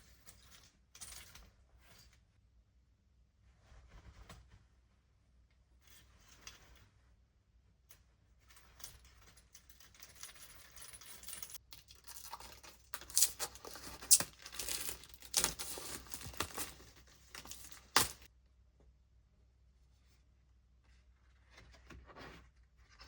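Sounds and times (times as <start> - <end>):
rustling and crinkling handling: 8.9 - 18.3.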